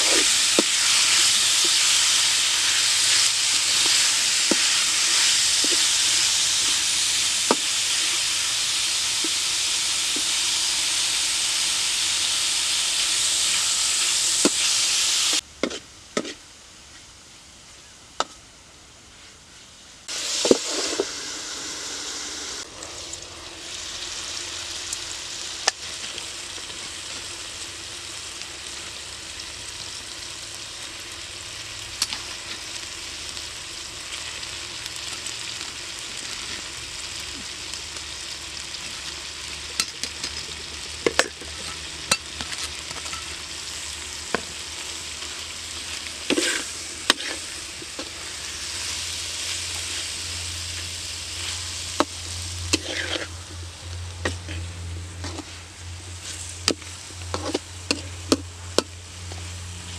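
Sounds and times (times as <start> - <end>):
metal utensil scraping a pan: 0.0 - 6.8, 39.7 - 43.5, 46.2 - 50.1, 51.4 - 53.6, 54.2 - 59.9
food sizzling in a wok: 0.0 - 18.2, 19.1 - 59.9.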